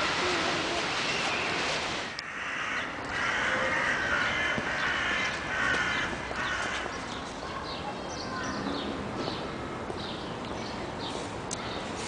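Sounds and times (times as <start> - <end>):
birds calling: 0.2 - 12.0.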